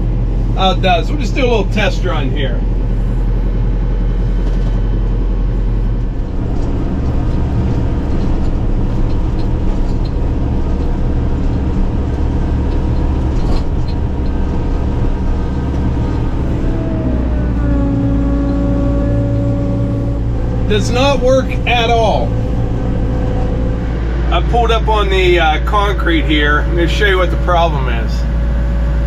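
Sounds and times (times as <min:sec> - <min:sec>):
steady whine: 0:00.0 - 0:29.0
tractor diesel engine under load: 0:00.0 - 0:29.0.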